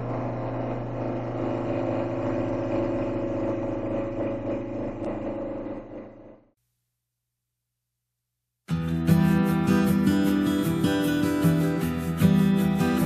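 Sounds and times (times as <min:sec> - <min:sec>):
wood lathe cutting: 0:00.0 - 0:06.4.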